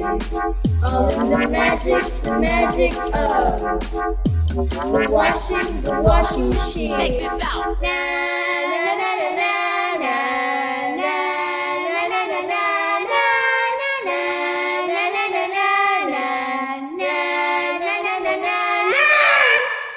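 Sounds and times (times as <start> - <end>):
light background music: 0.0 - 7.8
wordless high-pitched singing: 0.8 - 3.7, 4.7 - 19.9.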